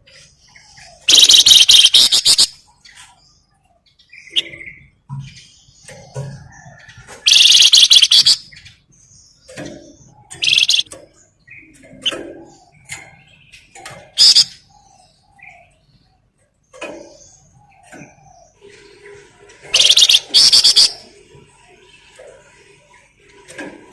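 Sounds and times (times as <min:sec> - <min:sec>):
soft bird chirps: 0:00.0 - 0:23.0
songbird harsh rattling bursts: 0:01.1 - 0:02.6, 0:07.2 - 0:08.5, 0:10.3 - 0:10.9, 0:14.2 - 0:14.6, 0:19.6 - 0:21.1.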